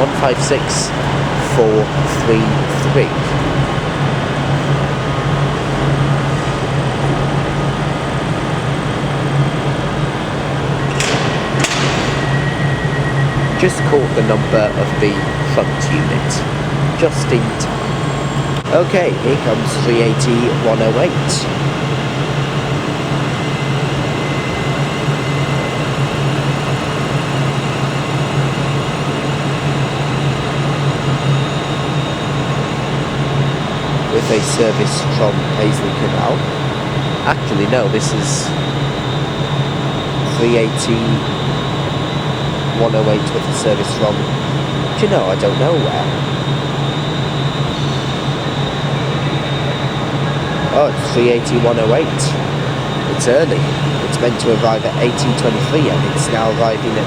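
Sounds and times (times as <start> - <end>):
diesel train engines idling: 0.0 - 57.0
sharp knocks: 10.9 - 12.4.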